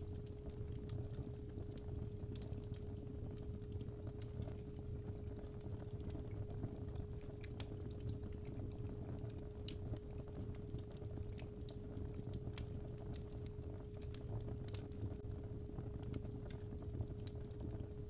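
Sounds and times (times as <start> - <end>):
low fire rumble: 0.0 - 18.0
wood fire crackling and popping: 0.0 - 18.0.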